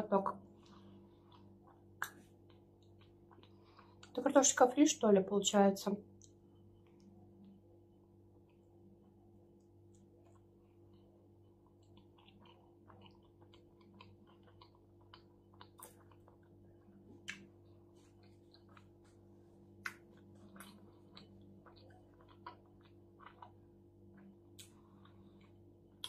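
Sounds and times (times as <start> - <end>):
steady low hum: 0.0 - 26.0
wet chewing mouth clicks: 0.6 - 4.2, 9.9 - 19.2, 19.8 - 23.6.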